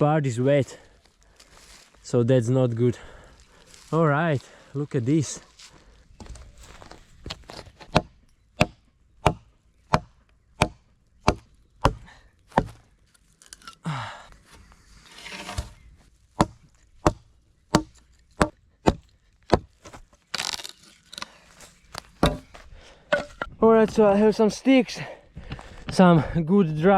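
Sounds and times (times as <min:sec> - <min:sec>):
wood rustling and splintering: 0:05.6 - 0:09.4, 0:10.6 - 0:24.4
axe chopping wood: 0:07.5 - 0:12.9, 0:16.4 - 0:20.7, 0:22.1 - 0:23.5.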